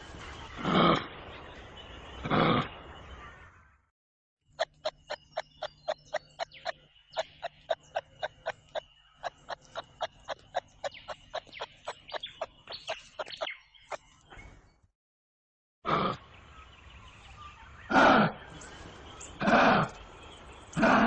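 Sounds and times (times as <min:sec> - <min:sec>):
kangaroo clucking clicks: 0:04.5 - 0:14.1.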